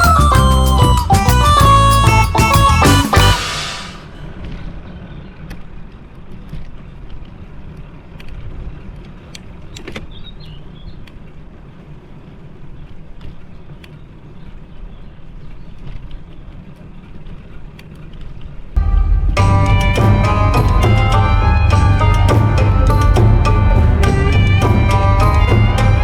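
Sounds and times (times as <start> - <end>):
brief high chirp: 0.0 - 4.4.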